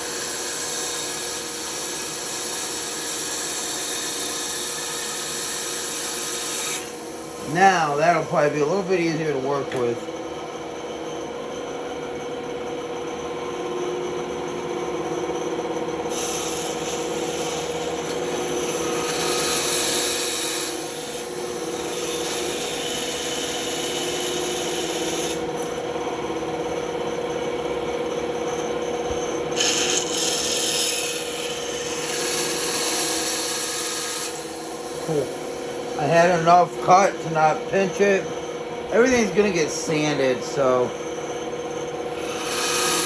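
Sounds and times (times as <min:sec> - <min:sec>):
saw blade cutting wood: 0:00.0 - 0:09.9, 0:16.1 - 0:25.7, 0:29.6 - 0:38.3, 0:38.9 - 0:40.8, 0:42.2 - 0:43.0
band saw humming: 0:00.0 - 0:43.0.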